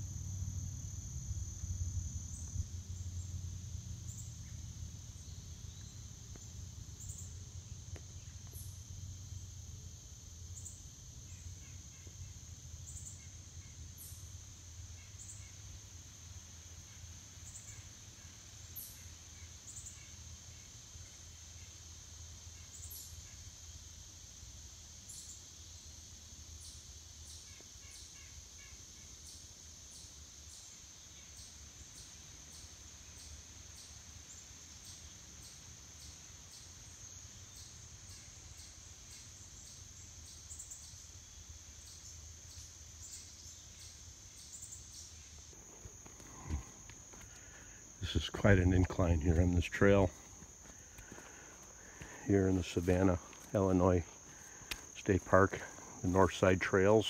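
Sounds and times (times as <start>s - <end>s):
insects droning: 0.0s - 57.0s
faint chirps: 30.0s - 57.0s.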